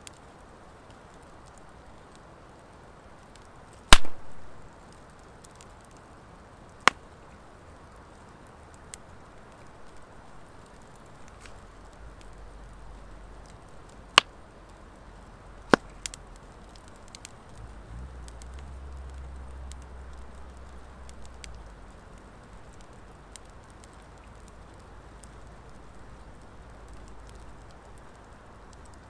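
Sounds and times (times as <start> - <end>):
campfire crackling: 0.0 - 29.0
loud fire pops: 3.3 - 7.1, 13.4 - 26.1.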